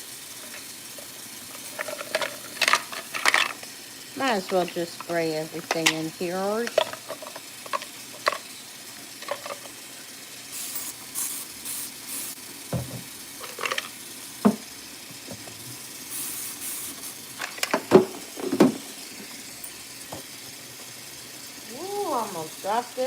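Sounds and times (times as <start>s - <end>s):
spray bottle hissing bursts: 10.5s - 12.4s, 16.0s - 17.4s
dishes clinking in sink: 17.6s - 18.9s.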